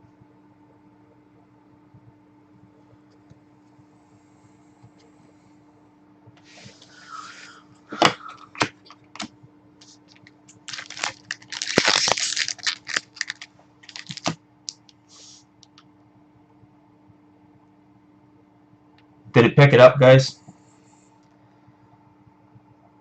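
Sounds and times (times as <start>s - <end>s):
packaging crinkling and tearing: 9.9s - 15.0s.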